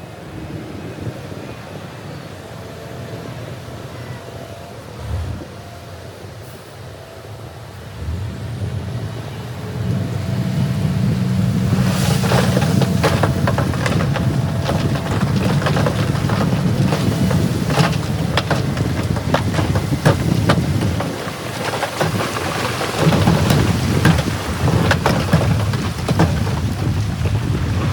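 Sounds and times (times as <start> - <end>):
diesel engine rumbling: 3.0 - 27.9
sharp clattering knocks: 11.4 - 27.9.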